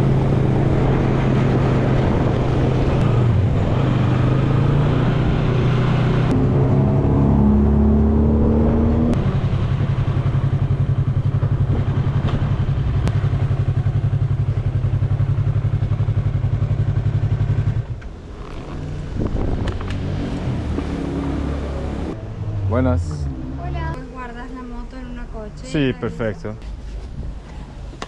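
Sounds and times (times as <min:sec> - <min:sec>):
motorcycle engine running: 0:09.2 - 0:20.0.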